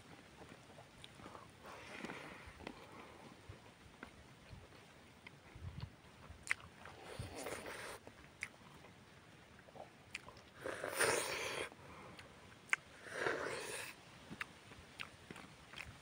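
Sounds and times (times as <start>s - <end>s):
wet chewing and biting: 5.2s - 9.0s, 9.6s - 16.0s
mouth clicks: 10.1s - 16.0s.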